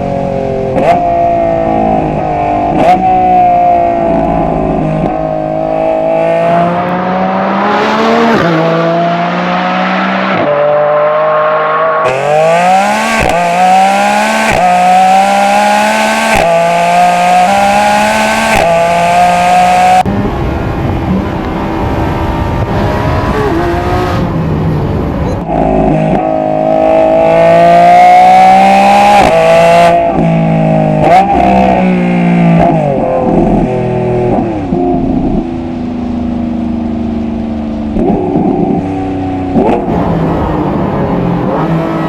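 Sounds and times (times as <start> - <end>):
sports car engine revving: 0.0 - 20.1, 21.0 - 42.0.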